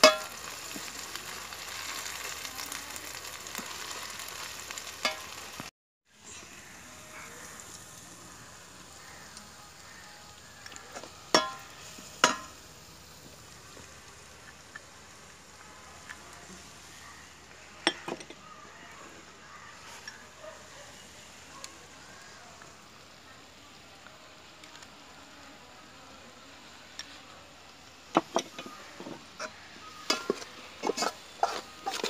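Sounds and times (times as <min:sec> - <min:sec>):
metal spoon clanking on pot: 0:00.0 - 0:00.4, 0:11.3 - 0:12.5
food sizzling in a pot: 0:00.0 - 0:32.0.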